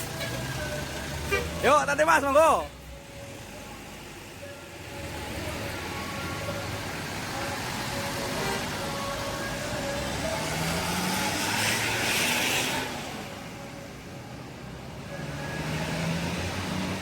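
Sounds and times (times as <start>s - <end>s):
vehicles driving by revving: 0.0s - 17.0s
rush of passing vehicle: 4.9s - 13.6s, 14.6s - 17.0s.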